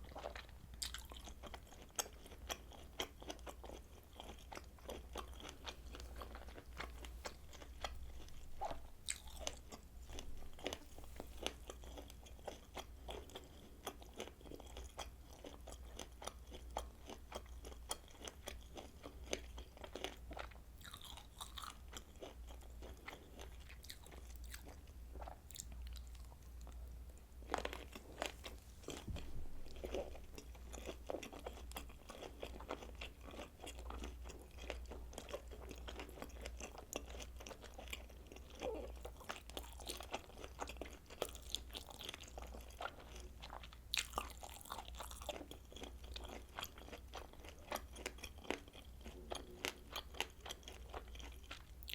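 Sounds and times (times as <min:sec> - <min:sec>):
chewing and biting sausage: 0:00.0 - 0:51.9
steady low hum: 0:24.8 - 0:32.7.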